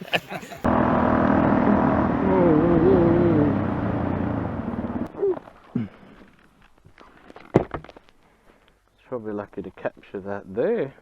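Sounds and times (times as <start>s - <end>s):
motorcycle engine running: 0.6s - 5.1s.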